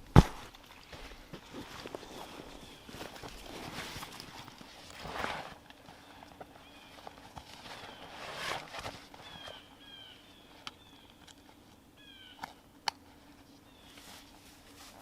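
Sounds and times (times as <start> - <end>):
rustle: 0.0 - 15.0
birds chirping: 2.0 - 4.5, 5.7 - 12.6, 13.4 - 14.3.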